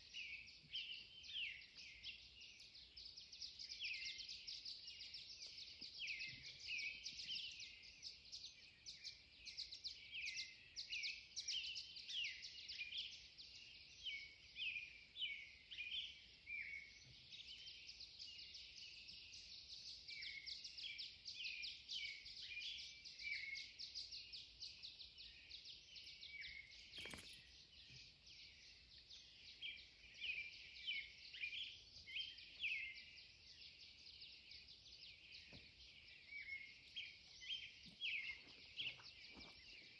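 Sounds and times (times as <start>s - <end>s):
songbirds chirping and trilling: 0.0s - 39.9s
sharp click: 27.0s - 27.4s.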